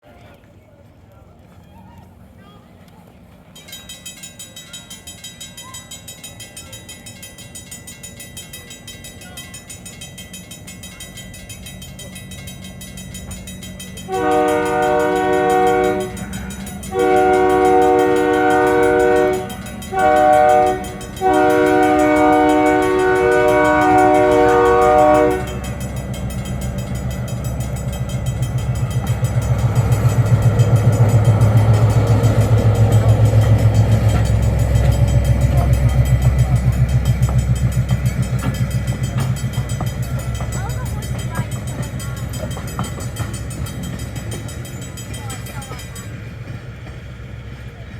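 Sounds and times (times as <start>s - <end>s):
train rumbling: 0.1s - 47.9s
train horn blasts: 14.0s - 43.3s.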